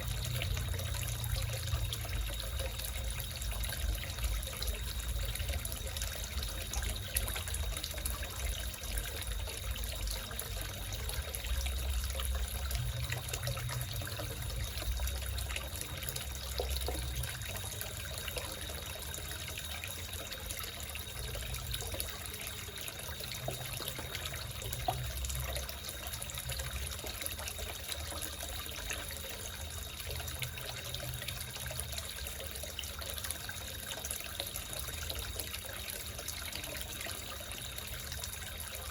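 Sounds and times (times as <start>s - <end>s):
water trickling into a pond: 0.0s - 38.9s.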